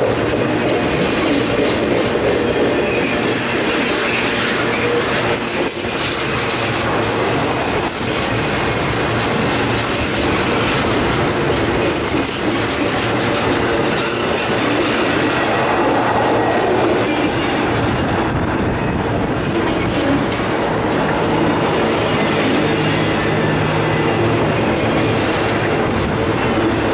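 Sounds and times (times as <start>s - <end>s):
freight train rumbling: 0.0s - 26.9s
wheels clicking over rail joints: 0.0s - 26.9s.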